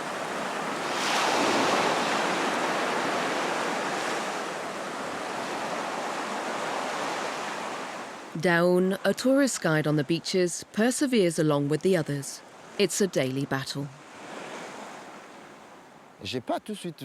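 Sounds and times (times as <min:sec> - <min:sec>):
sea waves breaking on beach: 0:00.0 - 0:08.4, 0:14.0 - 0:16.0.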